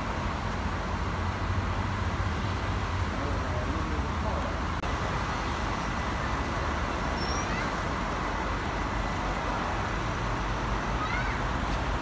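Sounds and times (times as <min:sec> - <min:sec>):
bus engine and road rumble: 0:00.0 - 0:12.0
faint high squeaks: 0:07.2 - 0:07.8.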